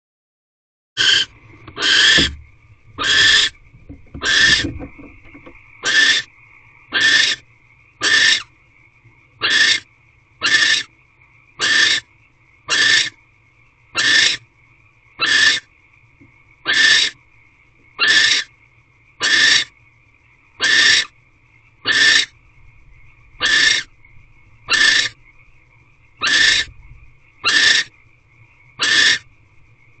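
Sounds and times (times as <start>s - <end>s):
barn owl hissing calls: 1.0s - 7.4s, 8.0s - 8.5s, 9.4s - 10.9s, 11.6s - 12.1s, 12.7s - 13.2s, 13.9s - 14.4s, 15.2s - 15.7s, 16.6s - 17.2s, 18.0s - 18.6s, 19.2s - 19.8s, 20.6s - 21.2s, 21.8s - 22.4s, 23.4s - 24.0s, 24.6s - 25.3s, 26.2s - 26.8s, 27.4s - 28.0s, 28.8s - 29.3s.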